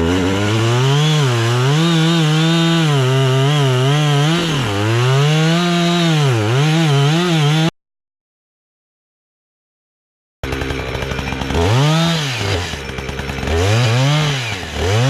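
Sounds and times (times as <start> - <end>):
excavator diesel engine working: 10.4 - 15.0.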